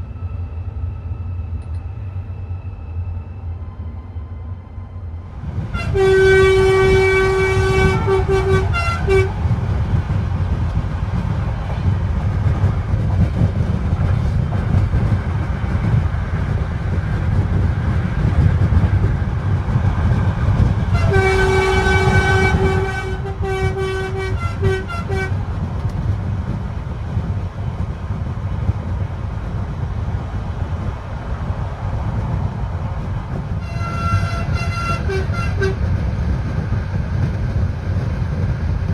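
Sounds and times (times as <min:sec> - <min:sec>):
train rumbling: 0:00.0 - 0:38.9
train horn: 0:05.7 - 0:09.5, 0:20.9 - 0:25.4, 0:33.6 - 0:35.9.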